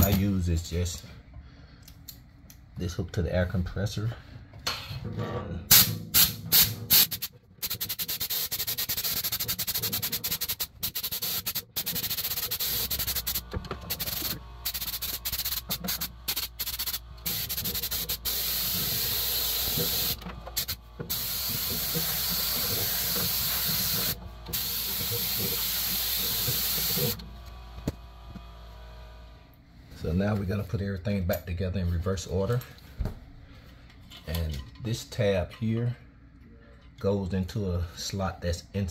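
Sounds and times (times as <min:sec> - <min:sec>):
compressed air blow gun hissing: 0:05.7 - 0:27.2.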